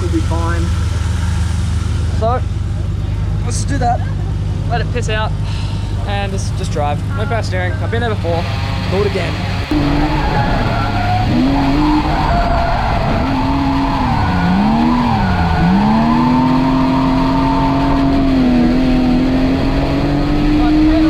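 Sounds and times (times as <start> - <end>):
car engine revving hard: 5.9 - 21.0
tyre squeal: 8.2 - 21.0.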